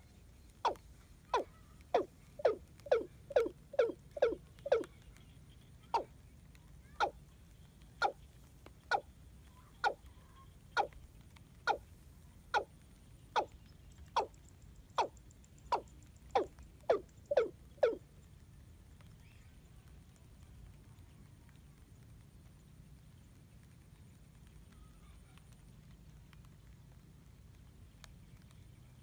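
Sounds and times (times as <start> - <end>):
bird calling with falling notes: 0.6 - 4.9, 8.0 - 8.2, 8.9 - 11.0, 11.7 - 11.9, 13.4 - 14.4, 15.0 - 18.0.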